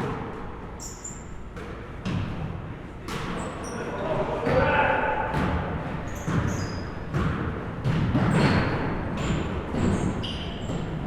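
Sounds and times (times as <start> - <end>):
sneaker squeaks: 0.6 - 2.0, 3.1 - 4.8, 6.0 - 11.0
basketball bouncing on gym floor: 1.5 - 3.4, 4.4 - 11.0.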